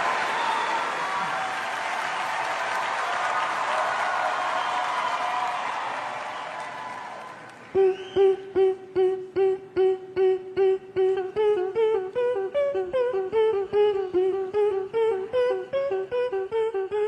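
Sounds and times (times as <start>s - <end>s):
higher voice line singing: 7.7s - 17.0s
vocal group singing staccato notes: 7.7s - 17.0s.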